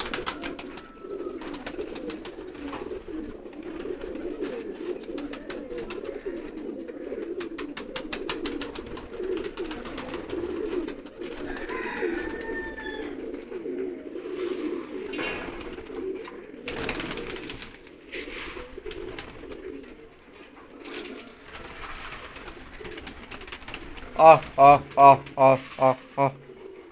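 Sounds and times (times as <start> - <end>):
pigeons cooing: 0.0 - 26.9.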